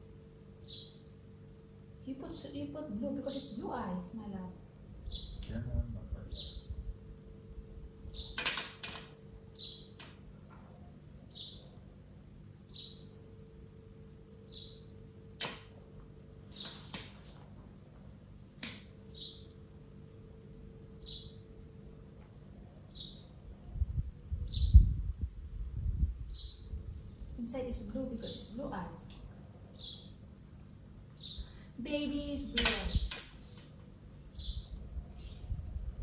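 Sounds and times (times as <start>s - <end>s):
faint steady hum: 0.0s - 36.0s
bird chirping: 0.6s - 1.1s, 5.0s - 5.6s, 6.2s - 6.7s, 8.1s - 8.5s, 9.5s - 10.1s, 11.2s - 11.8s, 12.6s - 13.2s, 14.4s - 15.0s, 16.5s - 16.9s, 19.0s - 19.6s, 21.0s - 21.5s, 22.8s - 23.4s, 24.4s - 25.0s, 26.2s - 26.8s, 29.7s - 30.2s, 31.1s - 33.6s, 34.3s - 35.6s.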